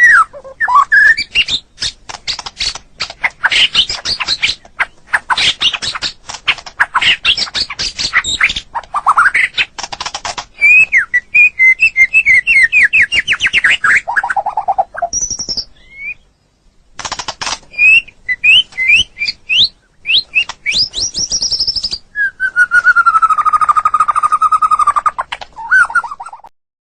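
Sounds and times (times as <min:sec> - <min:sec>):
long falling bird whistle: 0:00.0 - 0:01.7, 0:10.6 - 0:14.4, 0:17.7 - 0:25.0
bird singing with whistles and trills: 0:00.0 - 0:06.2, 0:06.9 - 0:09.7, 0:10.5 - 0:16.4, 0:17.7 - 0:26.5.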